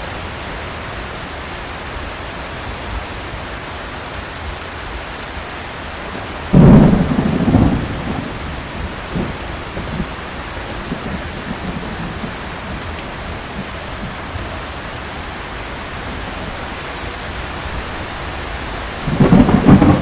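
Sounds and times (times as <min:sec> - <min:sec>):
heavy rain: 0:00.0 - 0:20.0
loud thunderclap rumbling: 0:06.1 - 0:15.0, 0:15.9 - 0:20.0.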